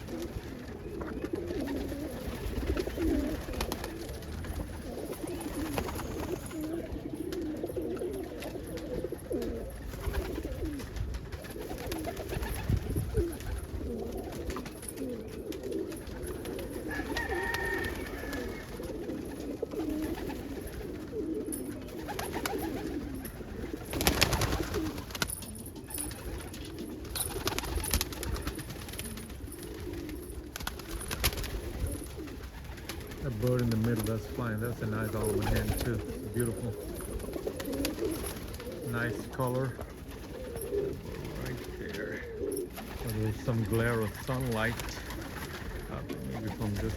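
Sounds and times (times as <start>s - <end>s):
pigeons cooing: 0.0s - 46.9s.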